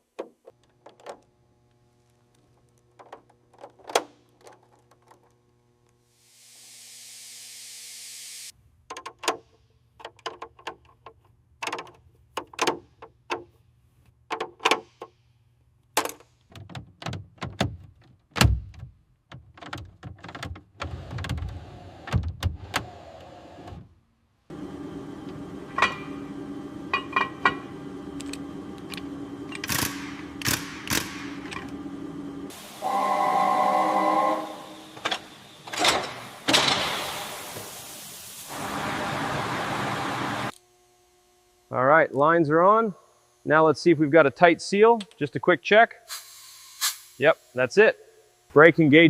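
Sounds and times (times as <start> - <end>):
steady hum: 24.5 - 40.5.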